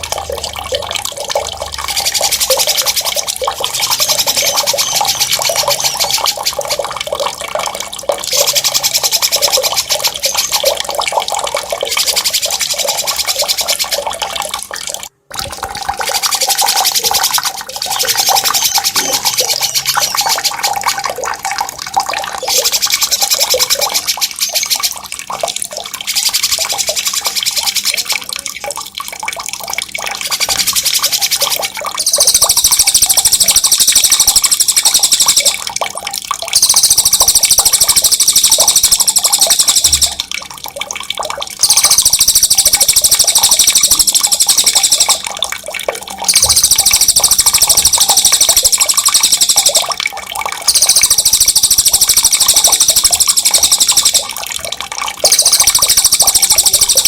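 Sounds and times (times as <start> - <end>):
running water: 0.0 - 57.0
songbird rolling trill: 1.9 - 6.8, 16.2 - 20.8, 30.3 - 35.6, 36.6 - 40.2, 41.6 - 45.2, 46.3 - 49.9, 50.7 - 54.3, 55.2 - 57.0.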